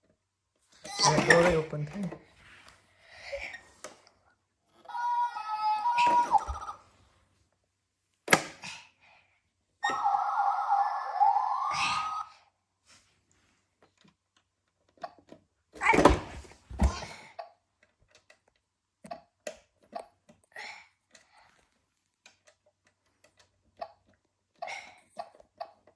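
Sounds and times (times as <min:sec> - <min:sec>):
electronic toy rising tone: 0:04.9 - 0:06.8, 0:09.8 - 0:12.3.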